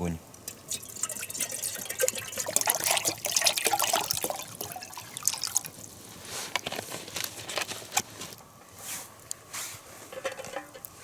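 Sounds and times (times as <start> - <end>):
campfire crackling: 0.2 - 11.0.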